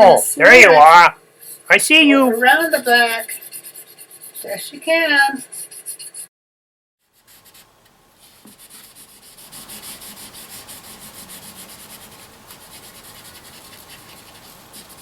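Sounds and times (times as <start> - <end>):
marker scrubbing on paper: 0.5 - 6.3, 7.1 - 15.0.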